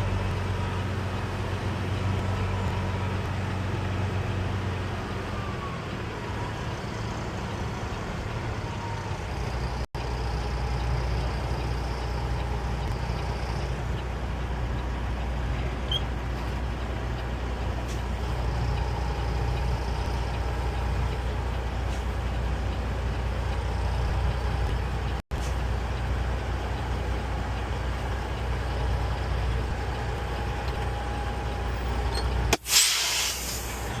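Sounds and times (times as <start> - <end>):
truck diesel engine running: 0.0 - 34.0
air brake hiss: 32.5 - 34.0.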